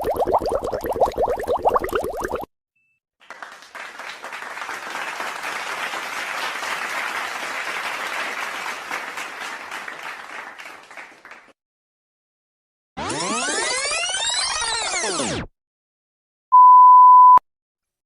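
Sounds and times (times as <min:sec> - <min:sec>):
crowd applause: 0:03.2 - 0:11.5.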